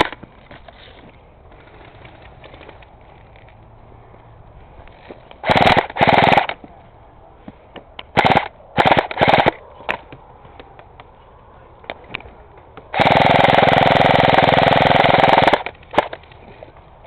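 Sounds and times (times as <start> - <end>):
airsoft rifle full-auto bursts: 5.4 - 6.6, 8.1 - 9.6, 12.9 - 16.2.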